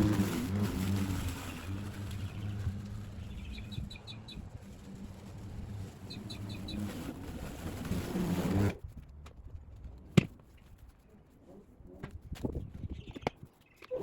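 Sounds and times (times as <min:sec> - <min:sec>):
electric lawn mower running: 0:00.0 - 0:08.8
bird chirping: 0:01.5 - 0:04.6, 0:06.1 - 0:06.9.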